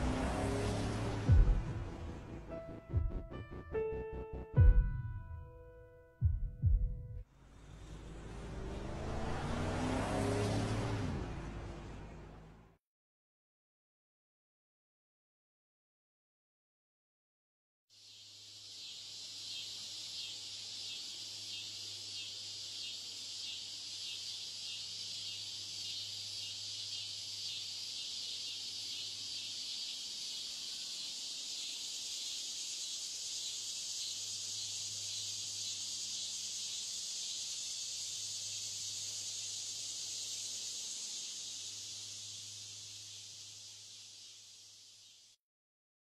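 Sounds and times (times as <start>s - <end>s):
crickets chirping: 18.0s - 45.4s.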